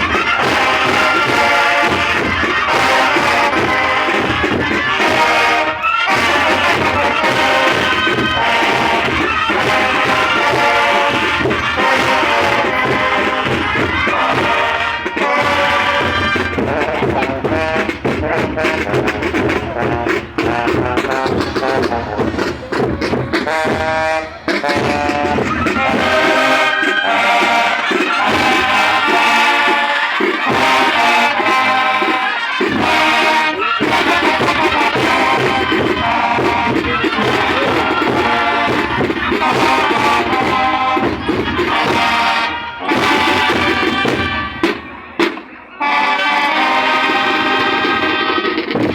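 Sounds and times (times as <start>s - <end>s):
brass instruments playing melody: 0.0s - 48.9s
drums: 0.0s - 48.9s.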